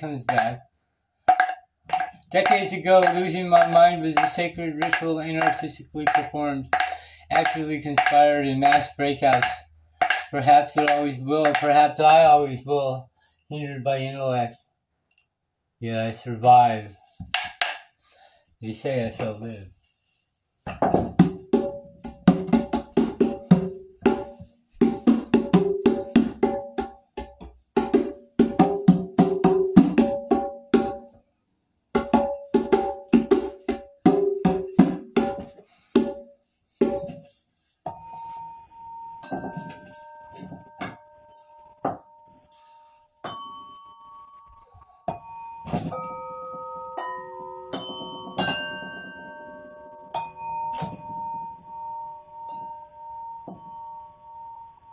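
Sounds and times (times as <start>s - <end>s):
bells struck and ringing: 37.9s - 54.9s.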